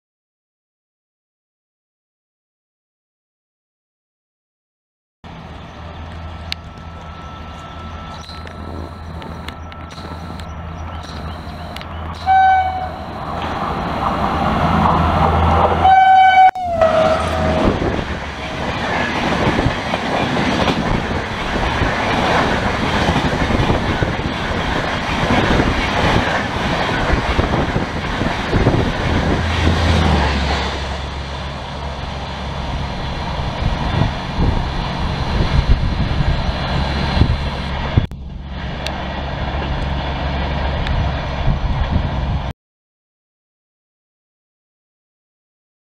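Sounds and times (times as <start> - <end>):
train coaches rushing by: 5.3 - 42.5
locomotive horn blasts: 11.5 - 13.2, 15.8 - 17.8.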